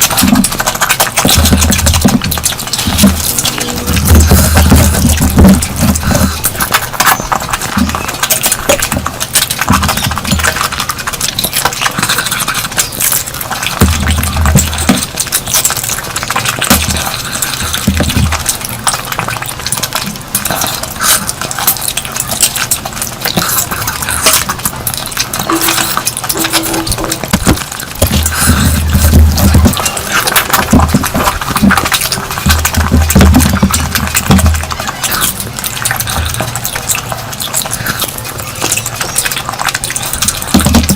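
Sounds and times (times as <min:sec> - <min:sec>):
chewing clicks and smacks: 0:00.0 - 0:40.9.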